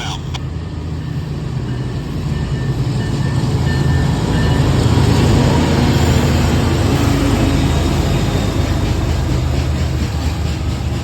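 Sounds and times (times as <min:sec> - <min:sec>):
diesel locomotive engines droning: 0:00.0 - 0:11.0
train rumble: 0:00.0 - 0:11.0.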